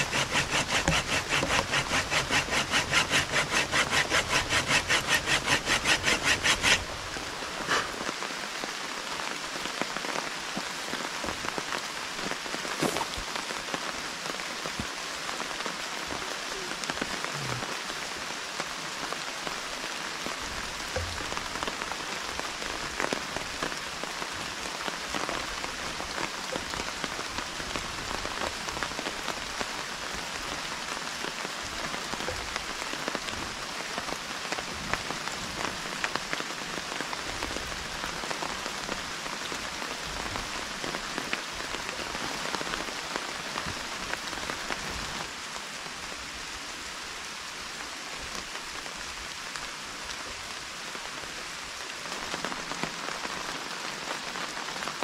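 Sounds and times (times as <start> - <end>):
rain hissing through forest: 0.0 - 55.0
raindrops ticking on surfaces: 6.8 - 46.5.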